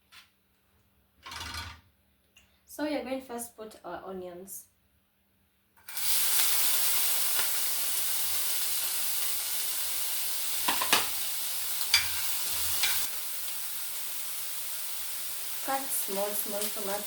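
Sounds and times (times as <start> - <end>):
onions sizzling in hot oil: 5.8 - 17.0
spoon knocking against pan: 10.7 - 11.1.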